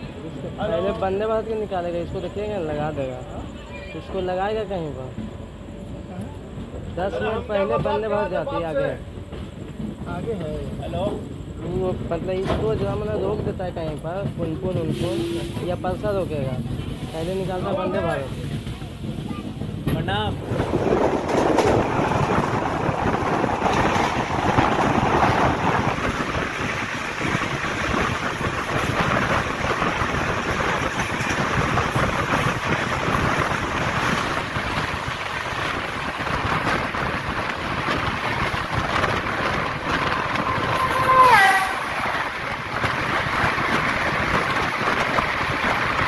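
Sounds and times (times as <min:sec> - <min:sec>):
passing train: 0:00.0 - 0:46.0
train rail noise: 0:00.0 - 0:46.0
wind rushing: 0:18.3 - 0:46.0
train horn blast: 0:40.3 - 0:42.1.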